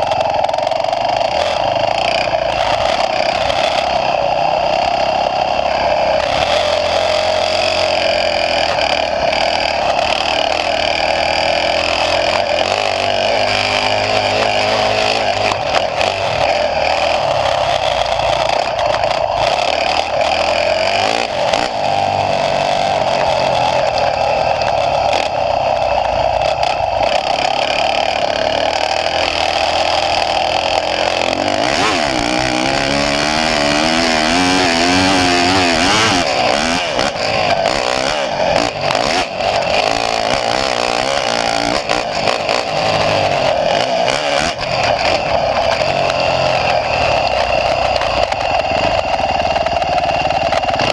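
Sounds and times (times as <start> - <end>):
motocross bike engine: 0.0 - 50.9.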